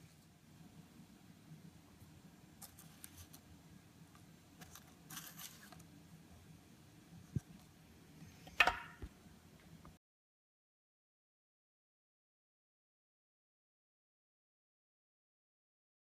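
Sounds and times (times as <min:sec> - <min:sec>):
low room hum: 0:00.0 - 0:10.0
paper rustling: 0:02.6 - 0:03.4, 0:04.6 - 0:05.9
wooden ring knocking: 0:08.6 - 0:09.1.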